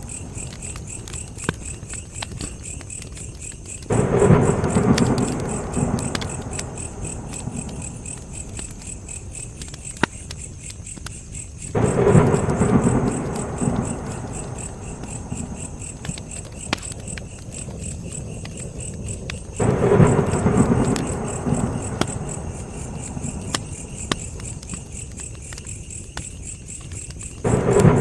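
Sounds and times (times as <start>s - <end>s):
campfire crackling: 0.0s - 28.0s
insects chirping: 0.0s - 28.0s
low rumble: 3.9s - 9.1s, 11.8s - 17.2s, 19.6s - 24.8s, 27.5s - 28.0s.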